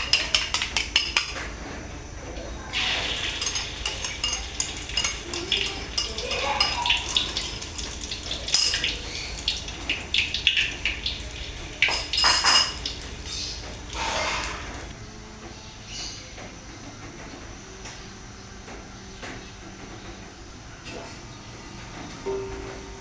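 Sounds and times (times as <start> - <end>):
metal utensils clinking on pans: 0.0 - 1.6, 2.7 - 14.9.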